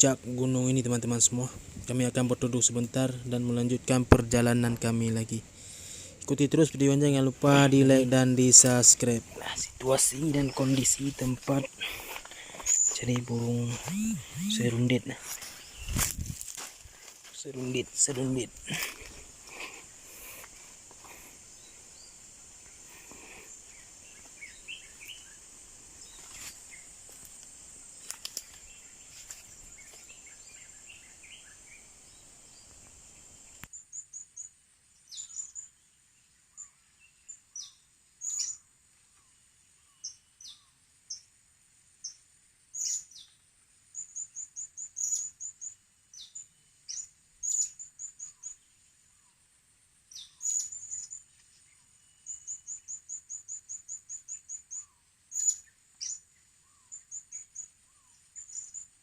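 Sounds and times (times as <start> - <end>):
steady high hiss: 0.0 - 59.0
faint bird calls: 8.4 - 16.0
parrots chirping: 13.8 - 14.8.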